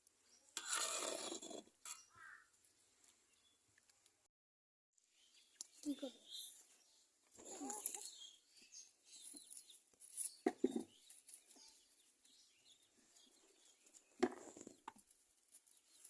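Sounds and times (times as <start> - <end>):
birds calling: 1.9 - 2.5.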